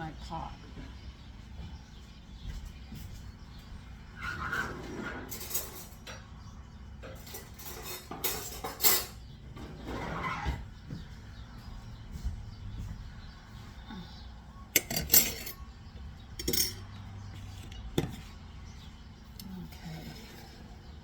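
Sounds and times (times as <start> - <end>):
dishes and utensils clattering: 4.3 - 6.3, 7.0 - 10.3, 14.7 - 18.4.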